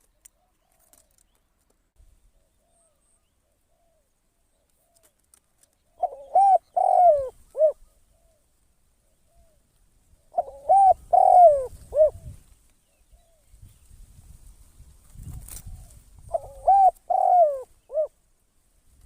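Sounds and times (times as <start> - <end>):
dove cooing: 5.9 - 8.4, 10.2 - 12.4, 15.6 - 18.2.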